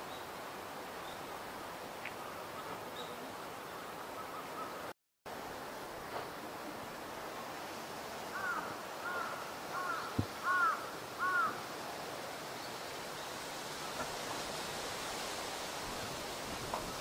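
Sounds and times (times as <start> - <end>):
steady hiss: 0.0 - 17.0
bird calling: 8.3 - 11.6.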